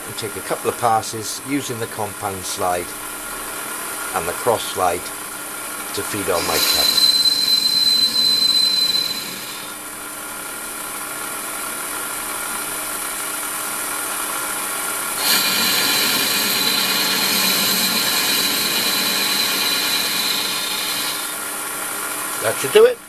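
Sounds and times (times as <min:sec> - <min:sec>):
high-pitched cutting squeal: 0:06.0 - 0:09.9, 0:15.2 - 0:21.5
lathe running: 0:06.0 - 0:09.9, 0:15.1 - 0:21.6.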